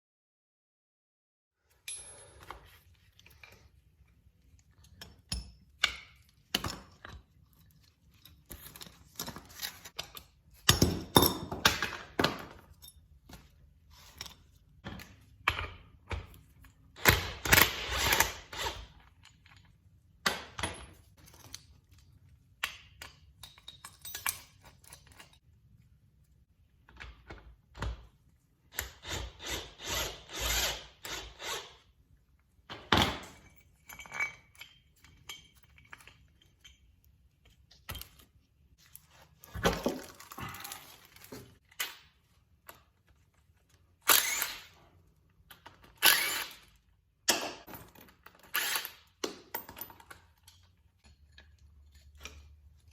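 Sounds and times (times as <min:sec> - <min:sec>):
metal parts knocking and clinking: 0:22.6 - 0:25.4, 0:32.7 - 0:37.0.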